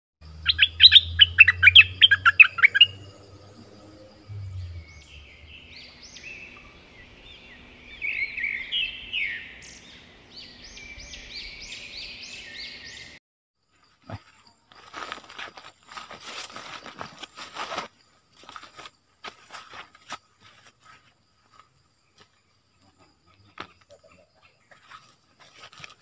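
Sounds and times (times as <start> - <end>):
rising sweeping tones: 0.3 - 12.0
bird singing sharp notes: 0.4 - 13.2.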